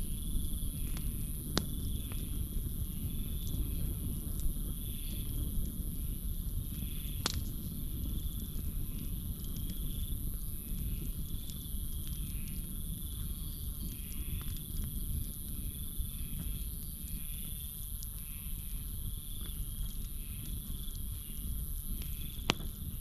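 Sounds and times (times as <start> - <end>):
campfire crackling: 0.0 - 23.0
insects trilling: 0.0 - 23.0.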